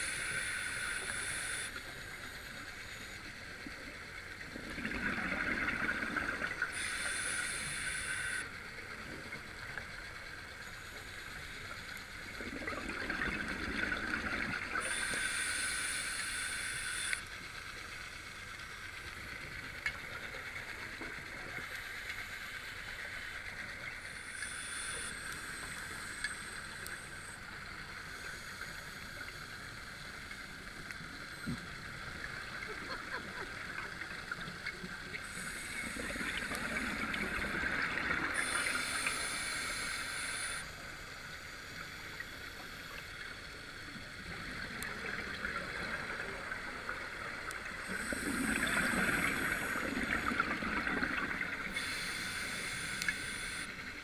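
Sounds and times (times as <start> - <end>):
hissing inhale through regulator: 0.0 - 3.3, 5.4 - 8.6, 14.0 - 17.4, 21.3 - 30.3, 35.1 - 43.1, 47.4 - 54.0
faint steady hiss: 0.0 - 54.0
bubbling exhale underwater: 4.6 - 6.7, 12.4 - 14.8, 47.8 - 52.0.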